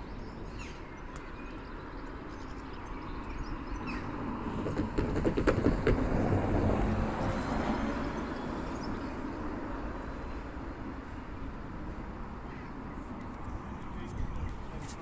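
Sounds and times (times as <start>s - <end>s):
train rumbling: 3.8s - 15.0s
train wheels clacking: 4.5s - 7.0s.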